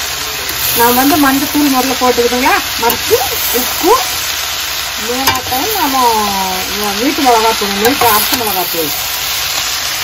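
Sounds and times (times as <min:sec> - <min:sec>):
cabbage sizzling in a pan: 0:00.0 - 0:10.0
woman talking: 0:00.8 - 0:04.1, 0:05.0 - 0:09.0.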